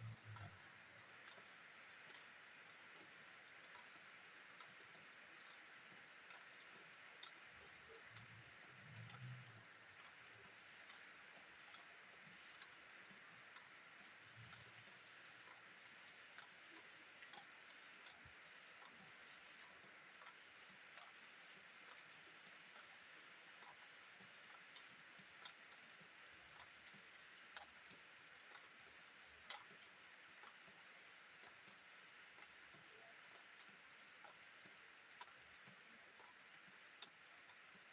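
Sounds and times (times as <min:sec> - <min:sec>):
raindrops ticking: 0:00.0 - 0:37.9.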